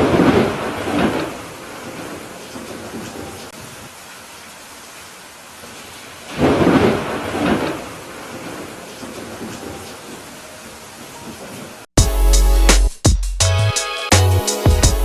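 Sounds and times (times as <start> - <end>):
steady rain: 0.0 - 11.9.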